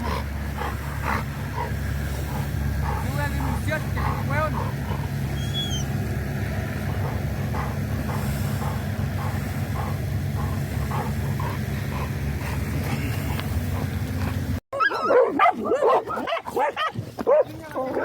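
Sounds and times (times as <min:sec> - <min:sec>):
low pulsing rumble: 0:00.0 - 0:14.6
dog barking and yelping: 0:02.3 - 0:05.9, 0:14.8 - 0:18.0.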